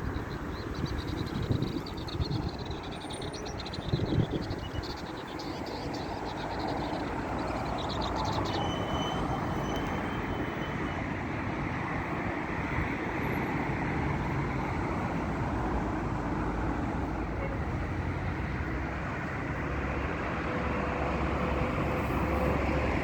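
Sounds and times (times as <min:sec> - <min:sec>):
songbird chirping: 0:00.0 - 0:10.0
rumble of traffic: 0:00.0 - 0:23.0.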